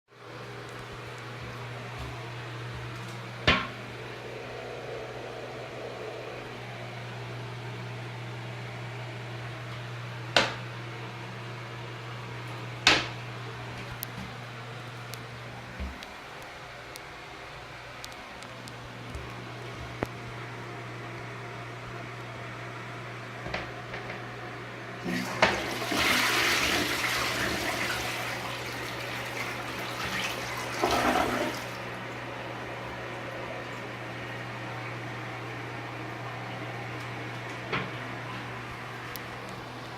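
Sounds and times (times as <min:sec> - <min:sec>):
steady low hum: 0:00.1 - 0:39.9
water gurgling: 0:25.0 - 0:31.8
toilet flushing: 0:25.0 - 0:31.9.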